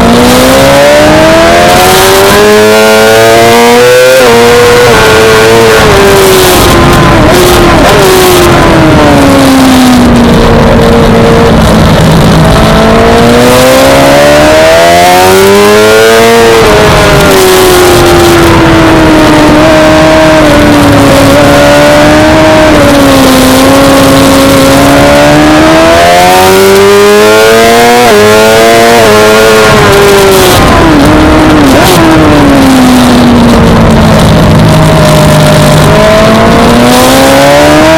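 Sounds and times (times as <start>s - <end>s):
motorcycle engine revving hard: 0.0s - 37.9s.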